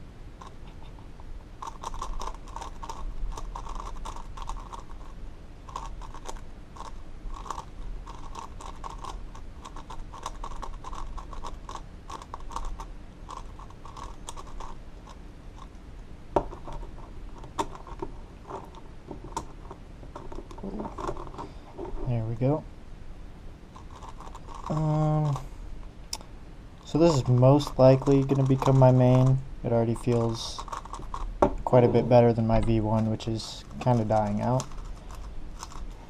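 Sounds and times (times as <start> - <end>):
plastic puzzle clicking and clacking: 0.4 - 5.1, 27.1 - 35.9.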